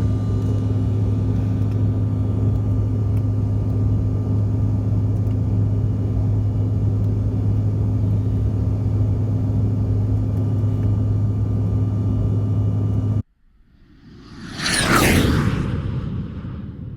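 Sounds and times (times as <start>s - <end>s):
airliner cabin drone: 0.0s - 16.9s
whoosh: 13.4s - 16.9s.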